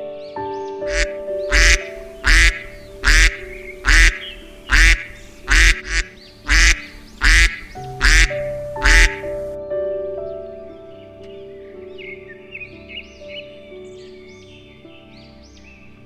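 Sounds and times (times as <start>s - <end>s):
soft background music: 0.0s - 16.0s
duck quacking: 0.9s - 9.4s.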